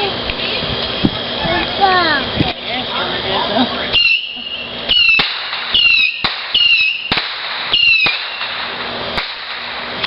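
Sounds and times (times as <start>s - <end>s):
crackling hiss: 0.0s - 10.0s
firework whistles falling in pitch: 3.9s - 8.6s
firework cracks: 4.5s - 10.0s.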